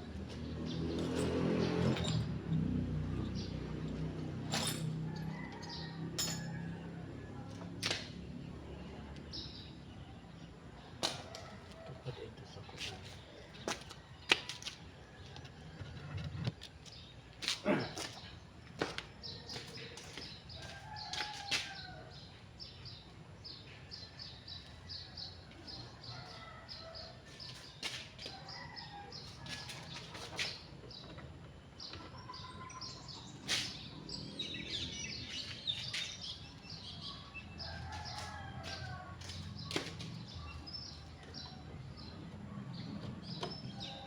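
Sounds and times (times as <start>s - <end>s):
small birds chirping: 16.5s - 44.0s.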